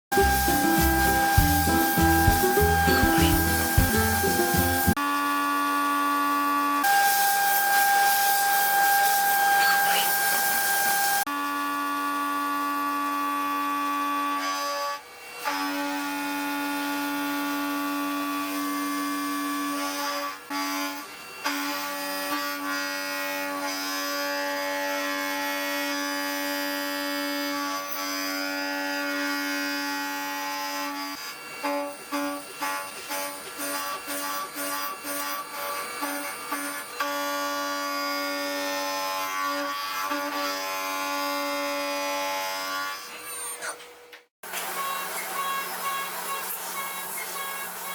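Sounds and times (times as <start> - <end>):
milling machine whine: 0.1 - 5.0.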